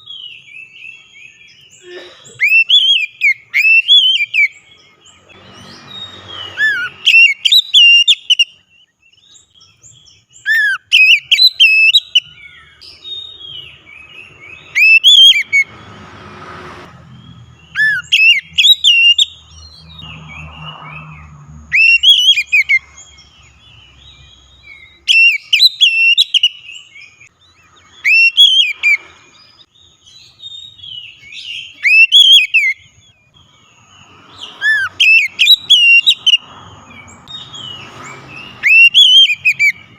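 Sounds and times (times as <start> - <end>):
bird singing whistled phrases: 2.4 - 4.6, 5.6 - 15.7, 17.6 - 21.1, 21.7 - 23.0, 24.6 - 29.1, 30.1 - 33.2, 34.4 - 36.4, 38.4 - 39.9.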